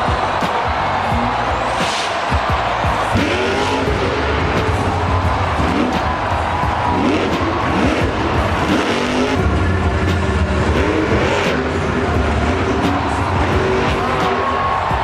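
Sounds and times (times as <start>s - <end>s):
truck engines revving: 0.0s - 15.0s.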